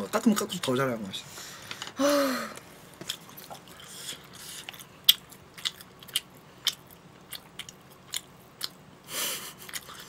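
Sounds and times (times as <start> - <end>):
person chewing food: 2.9 - 10.0.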